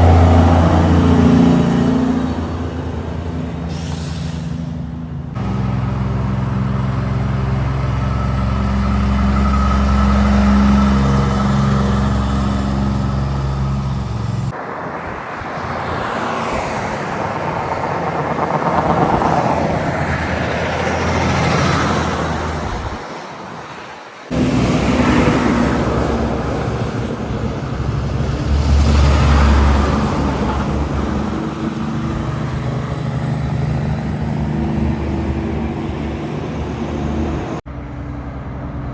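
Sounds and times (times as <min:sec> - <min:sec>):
truck engine humming: 0:00.0 - 0:14.8, 0:24.3 - 0:38.9
truck passing by: 0:00.0 - 0:38.9.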